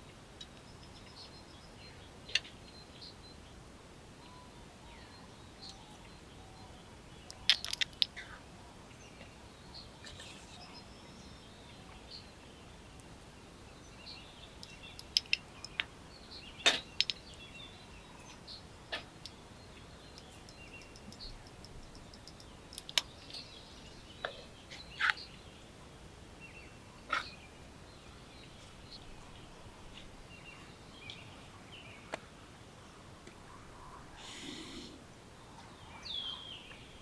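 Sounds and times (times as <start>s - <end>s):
steady low hiss: 0.0s - 37.0s
faint bird chirps: 4.2s - 32.2s
sharp clicks and knocks: 7.3s - 8.2s, 16.7s - 17.2s, 20.2s - 23.4s.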